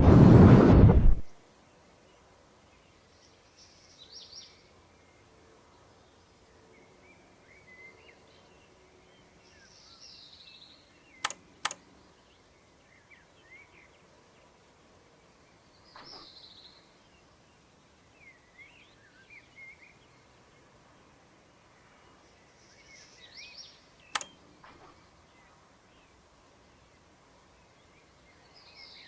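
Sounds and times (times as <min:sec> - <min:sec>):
birds chirping: 0:02.0 - 0:29.0
sharp clicks: 0:11.2 - 0:11.9, 0:24.1 - 0:24.9.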